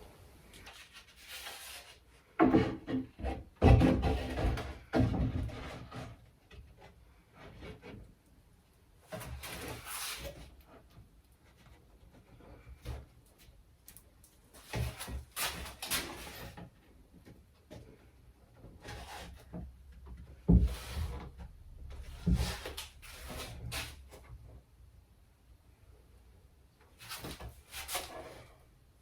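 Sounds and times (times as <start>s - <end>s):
timber knocks and scrapes: 0.7s - 8.2s, 9.1s - 13.2s, 14.6s - 24.7s, 26.9s - 28.6s
heavy thumps: 20.0s - 24.1s.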